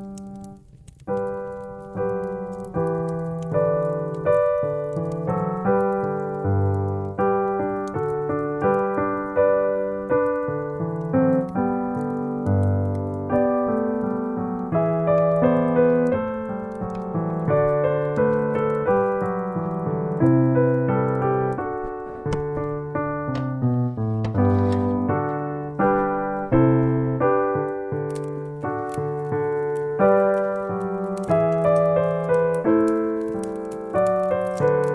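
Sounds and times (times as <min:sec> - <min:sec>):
solo piano music: 0:00.0 - 0:34.9.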